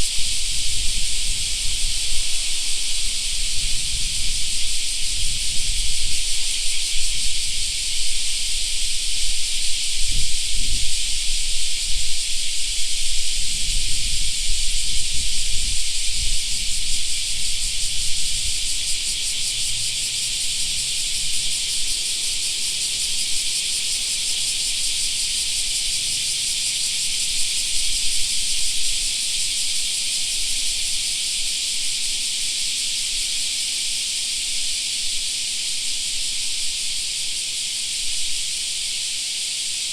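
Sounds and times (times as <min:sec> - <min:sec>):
wind rumble on microphone: 0:00.0 - 0:21.5
cicadas shrilling: 0:00.0 - 0:39.9.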